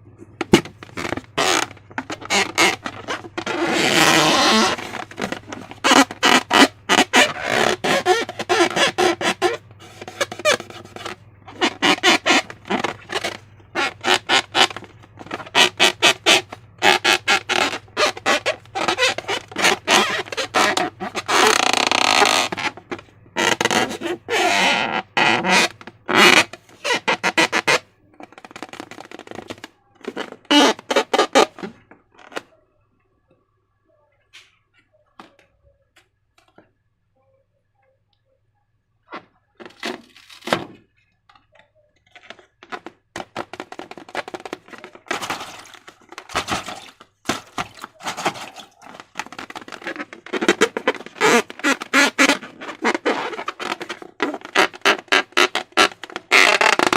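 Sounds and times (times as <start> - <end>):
slime and balloons squelching: 0.4 - 32.4, 42.1 - 56.9
slime squelching: 43.5 - 56.9.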